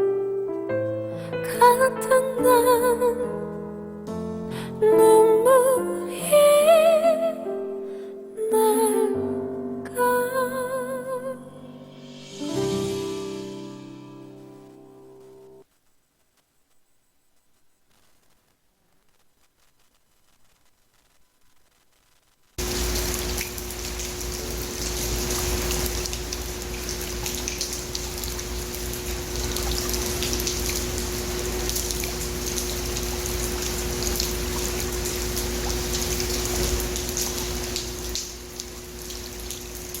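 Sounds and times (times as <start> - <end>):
rain falling: 22.6 - 40.0.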